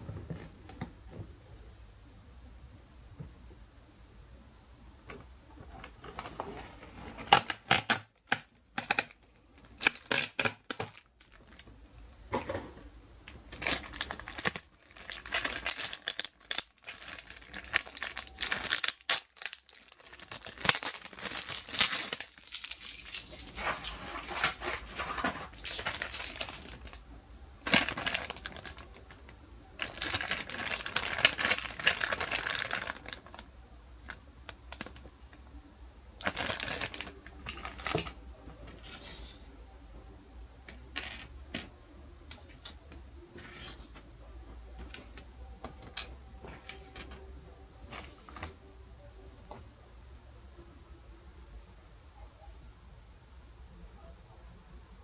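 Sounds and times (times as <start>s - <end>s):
packaging crinkling and rustling: 13.3s - 27.0s, 27.6s - 29.2s, 29.8s - 33.4s, 36.2s - 38.2s.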